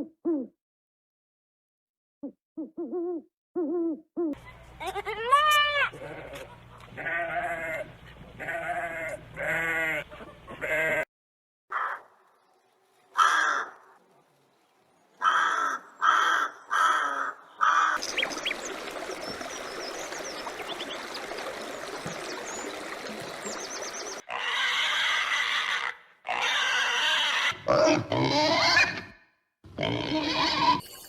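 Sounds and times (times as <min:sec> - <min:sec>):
outdoor background noise: 0:04.4 - 0:11.0, 0:11.7 - 0:29.0
sheep bleating: 0:05.7 - 0:10.0, 0:10.6 - 0:11.0, 0:29.8 - 0:30.8
harsh animal calls: 0:24.0 - 0:30.8.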